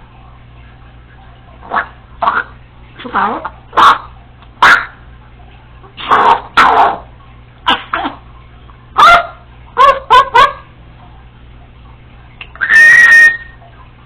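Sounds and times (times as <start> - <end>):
parrot barking like a dog: 1.6 - 5.0, 6.0 - 7.1, 9.0 - 10.7, 12.6 - 13.6.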